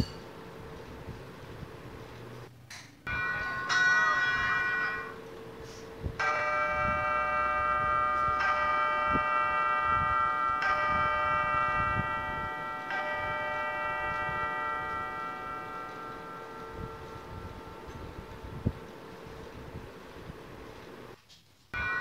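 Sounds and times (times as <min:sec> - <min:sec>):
bell ringing: 0:03.1 - 0:19.9, 0:21.8 - 0:22.0.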